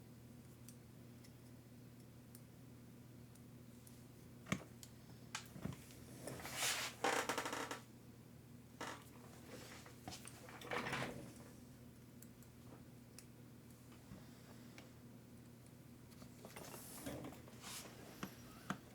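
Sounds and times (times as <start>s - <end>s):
low electrical hum: 0.0s - 18.9s.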